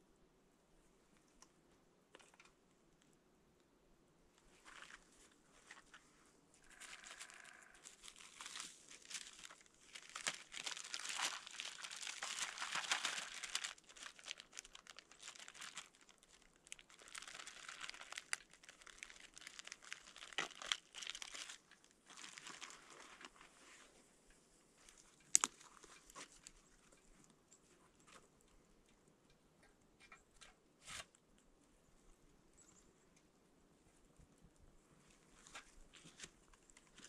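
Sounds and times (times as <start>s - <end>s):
material crinkling and rustling: 4.4s - 24.0s, 24.8s - 28.5s, 35.2s - 37.0s.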